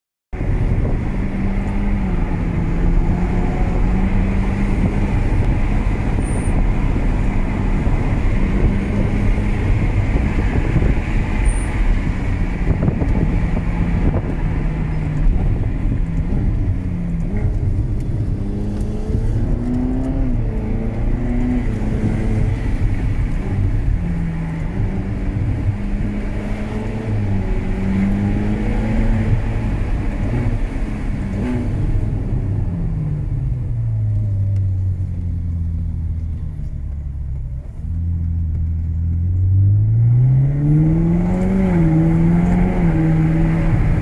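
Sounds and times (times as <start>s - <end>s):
car engine under way: 0.3s - 44.0s
tyre and road noise: 0.3s - 44.0s.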